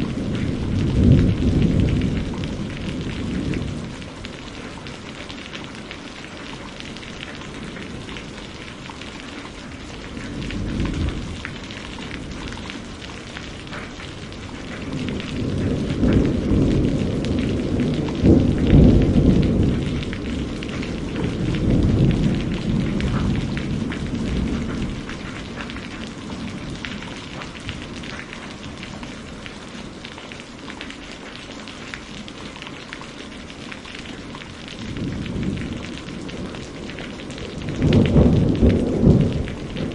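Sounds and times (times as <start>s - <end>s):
thunder rolling: 0.0s - 4.2s, 10.0s - 29.6s, 34.7s - 39.9s
steady rain: 0.0s - 39.9s.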